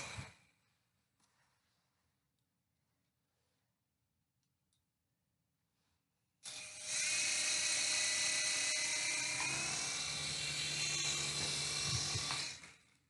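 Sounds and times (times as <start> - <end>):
toy helicopter motor whining: 6.4 - 12.9.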